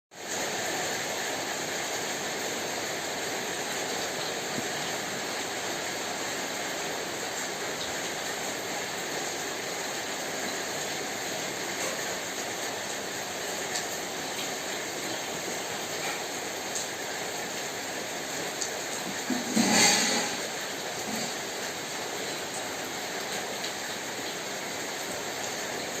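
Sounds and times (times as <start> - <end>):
steady rain hiss: 0.1 - 26.0
ticks of raindrops: 0.2 - 26.0.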